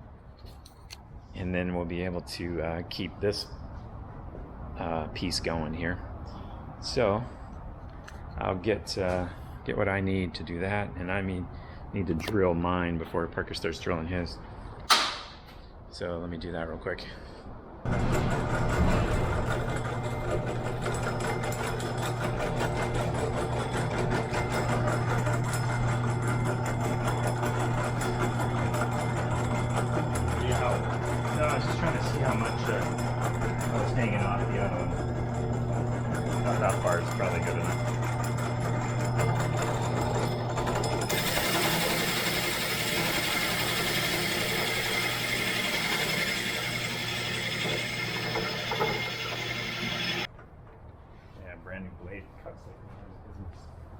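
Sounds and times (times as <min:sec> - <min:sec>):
electric drill boring holes: 0:17.9 - 0:50.3
power saw motor humming: 0:17.9 - 0:50.3
saw blade cutting wood: 0:17.9 - 0:50.3.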